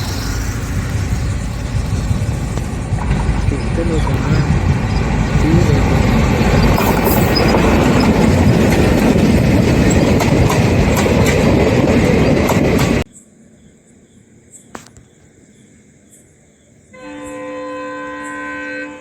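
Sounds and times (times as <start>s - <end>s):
train passing rumble: 0.0s - 13.1s
wheels clacking over rail joints: 0.0s - 13.1s.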